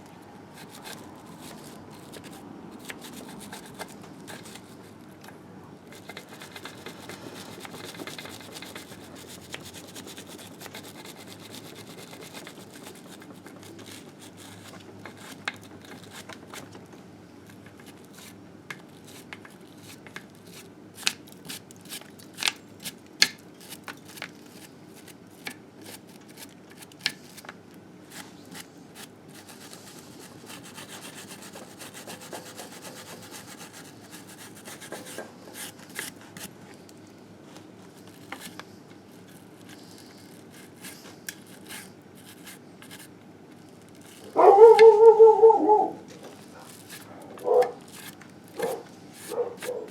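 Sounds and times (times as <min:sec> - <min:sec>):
rubbing on engine case: 0:46.3 - 0:49.9.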